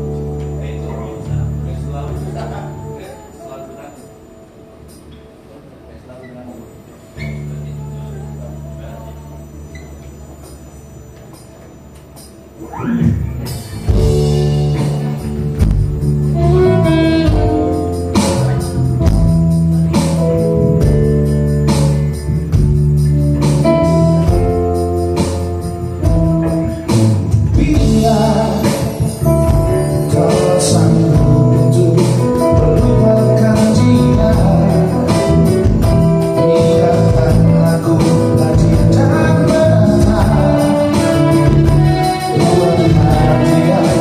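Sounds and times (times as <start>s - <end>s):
live band playing: 0.0s - 5.4s, 7.0s - 44.0s
person singing: 27.4s - 44.0s.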